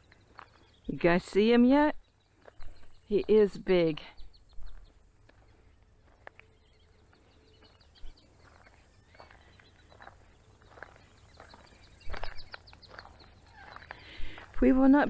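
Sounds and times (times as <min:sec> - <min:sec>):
birds chirping: 0:00.0 - 0:15.0
insects trilling: 0:00.0 - 0:15.0.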